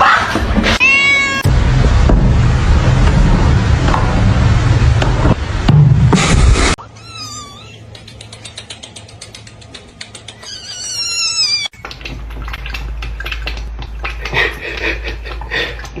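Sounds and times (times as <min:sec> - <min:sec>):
cat meowing: 0:00.8 - 0:01.5, 0:06.8 - 0:07.9, 0:10.4 - 0:11.7
low hum: 0:01.5 - 0:06.8
rapid ticks: 0:07.9 - 0:10.5
scattered clicks: 0:07.9 - 0:10.5.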